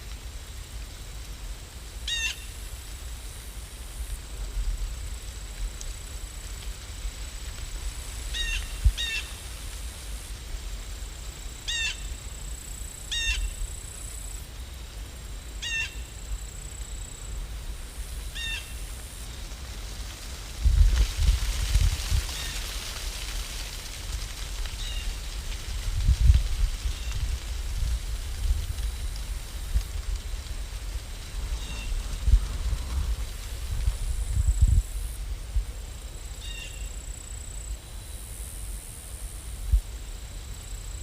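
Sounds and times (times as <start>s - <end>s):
rain-like hiss: 0.0s - 41.0s.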